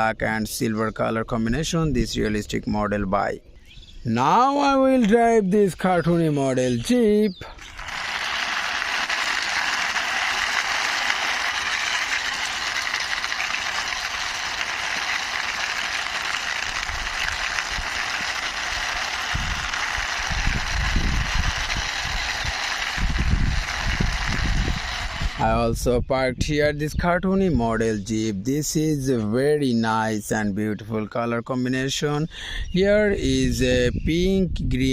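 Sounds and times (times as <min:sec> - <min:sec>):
toy car wheels whirring: 0:07.6 - 0:25.4.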